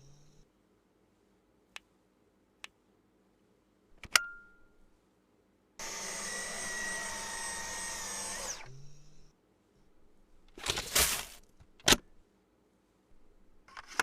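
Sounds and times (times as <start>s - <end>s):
vacuum motor whine: 5.8s - 9.2s.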